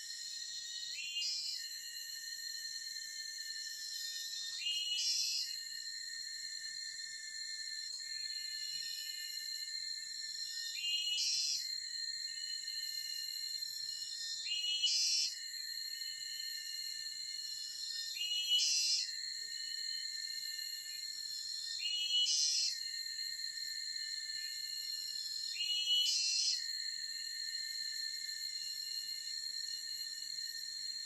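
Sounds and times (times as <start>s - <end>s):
chorus of forest insects: 0.0s - 31.0s.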